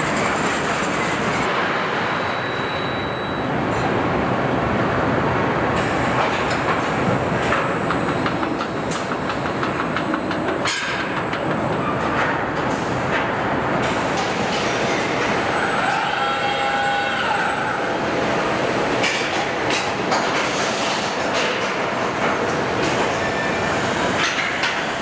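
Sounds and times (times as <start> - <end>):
machine whine of steady tones: 2.0 - 3.9.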